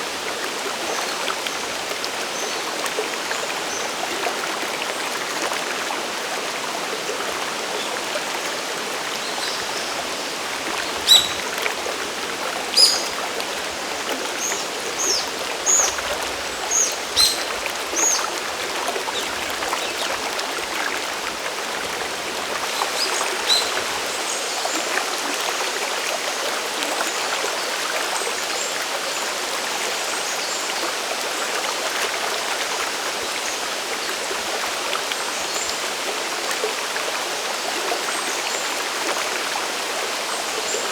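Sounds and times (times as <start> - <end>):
stream and waterfall rushing: 0.0 - 40.9
bird chirping: 11.0 - 11.5, 12.8 - 13.1, 16.7 - 18.2.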